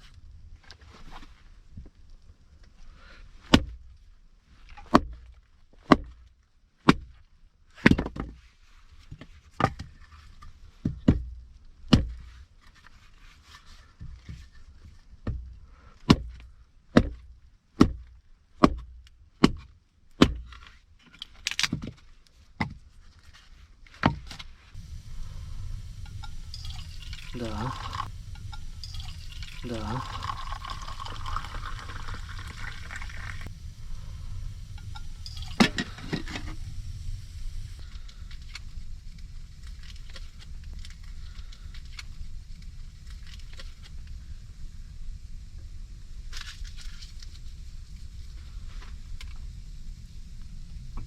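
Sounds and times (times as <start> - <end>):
wood being chopped: 16.9 - 17.2, 17.8 - 20.6.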